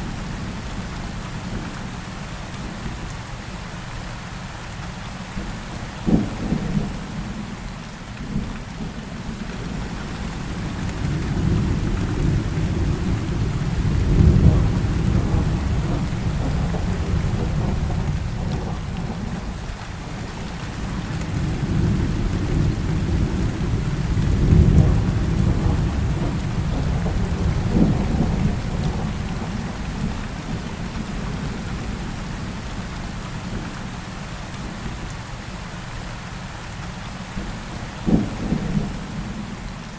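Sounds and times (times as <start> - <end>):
heavy rain falling: 0.0 - 39.9
deep rolling thunder rumbles: 8.3 - 33.6, 37.4 - 39.9.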